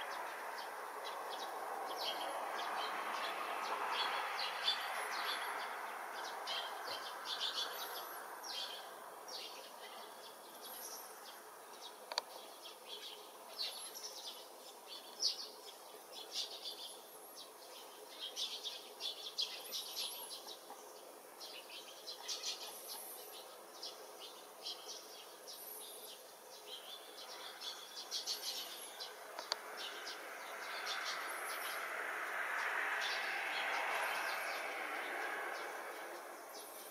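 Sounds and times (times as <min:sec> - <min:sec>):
small birds chirping and twittering: 0:00.0 - 0:36.9
passing train rumble: 0:30.1 - 0:36.8.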